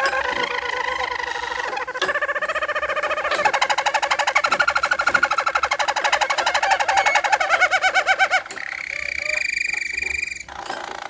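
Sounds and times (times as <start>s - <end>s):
canary singing trills: 0.0s - 11.0s.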